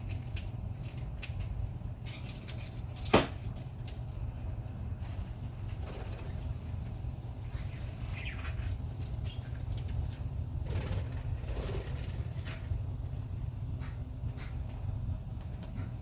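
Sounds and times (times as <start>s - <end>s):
wings fluttering: 5.0s - 13.4s.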